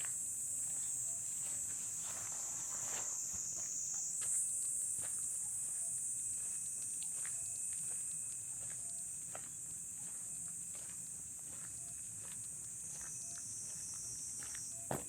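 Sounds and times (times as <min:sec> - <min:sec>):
crickets chirping: 0:00.0 - 0:15.0
footsteps on a path: 0:00.0 - 0:15.0.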